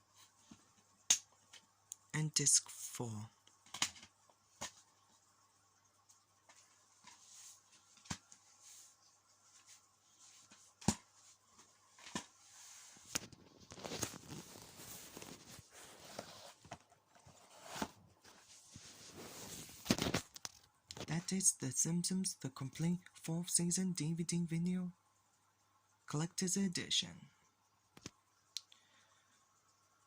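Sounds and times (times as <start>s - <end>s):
rustling handling noise: 6.0s - 21.1s.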